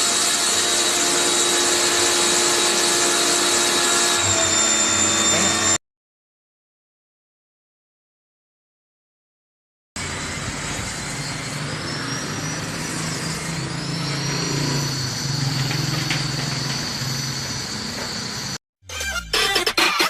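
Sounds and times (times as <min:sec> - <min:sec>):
machine humming: 0:00.0 - 0:05.8, 0:10.0 - 0:18.6
music: 0:18.8 - 0:20.0.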